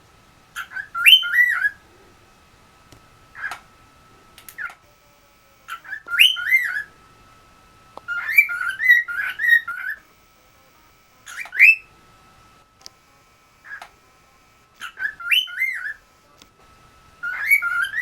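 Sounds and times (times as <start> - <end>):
cockatiel whistling: 0.6 - 1.8, 3.3 - 3.6, 5.7 - 7.0, 8.0 - 10.0, 11.3 - 11.9, 14.8 - 16.0, 17.2 - 18.0.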